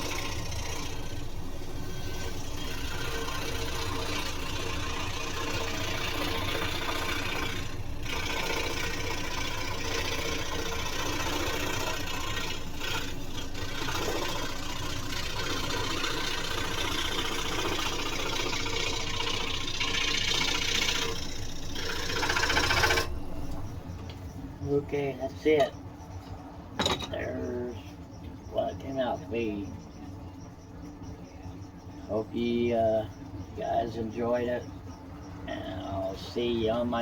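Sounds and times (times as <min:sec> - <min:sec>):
scroll saw cutting: 0:00.0 - 0:23.8.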